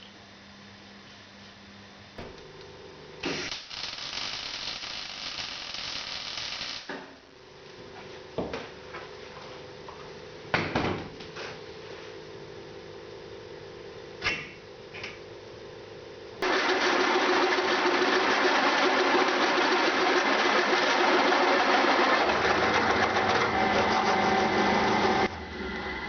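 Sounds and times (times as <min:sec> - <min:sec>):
machine motor humming: 0:16.4 - 0:26.0.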